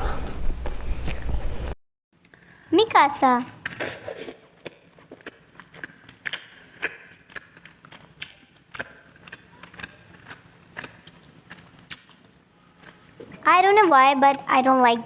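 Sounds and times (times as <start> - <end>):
mouth chewing wet smacks: 0.0 - 1.8.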